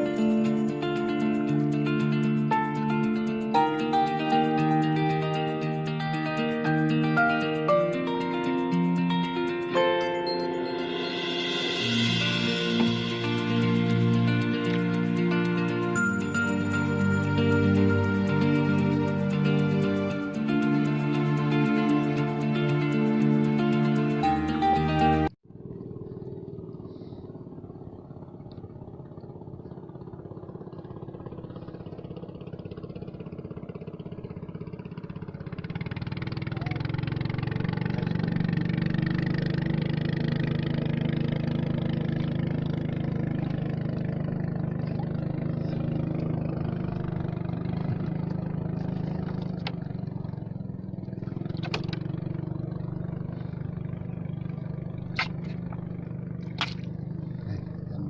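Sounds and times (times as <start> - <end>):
small boat engine running: 0.0 - 58.0.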